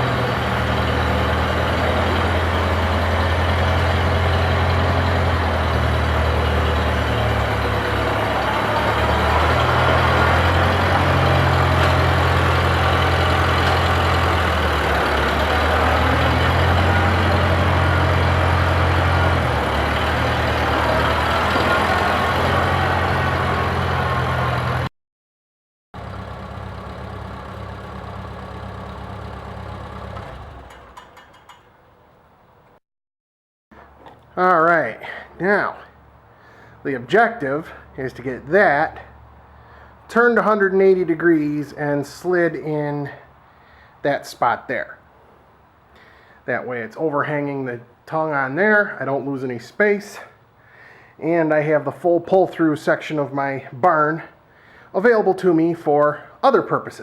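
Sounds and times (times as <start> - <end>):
tractor engine running: 0.0 - 24.9, 26.0 - 31.9.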